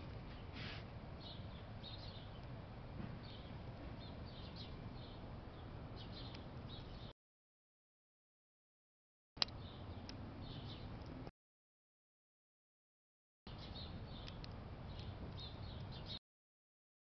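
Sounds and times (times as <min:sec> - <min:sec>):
small birds chirping: 0:00.2 - 0:07.1, 0:09.4 - 0:11.3, 0:13.5 - 0:16.2.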